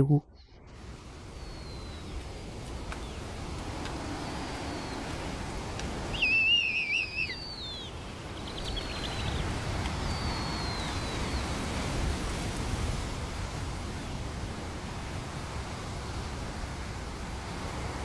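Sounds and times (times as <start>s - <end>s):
faint bird chirps: 0.0s - 2.2s, 6.0s - 11.6s
low rumble of wind: 0.0s - 18.0s
bird wavering whistled call: 6.0s - 11.6s
thin falling whistle: 6.1s - 7.8s.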